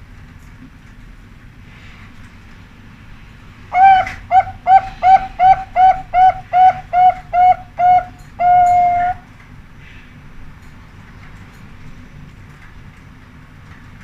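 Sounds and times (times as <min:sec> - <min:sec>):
dove cooing: 0:03.7 - 0:09.3.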